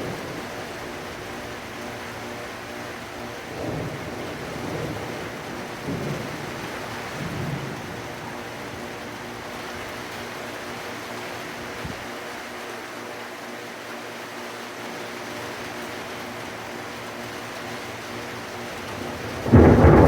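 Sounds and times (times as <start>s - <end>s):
thunder rumbling: 0.0s - 2.5s, 3.2s - 10.4s, 18.3s - 20.0s
steady rain: 0.0s - 20.0s.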